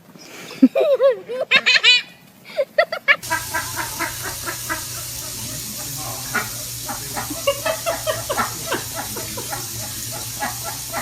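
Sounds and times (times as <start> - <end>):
low hum and hiss: 2.2 - 11.0.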